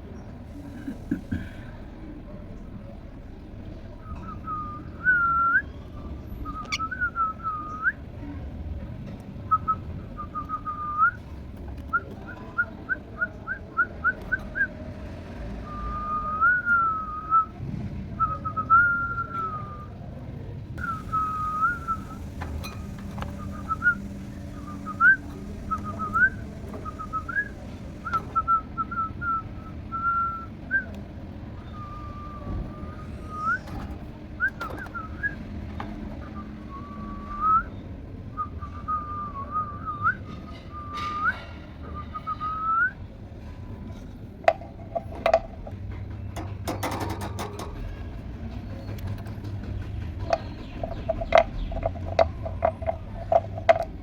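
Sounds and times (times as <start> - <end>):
whistled phrases sliding in pitch: 20.8 - 22.4, 23.2 - 33.8, 36.2 - 37.8.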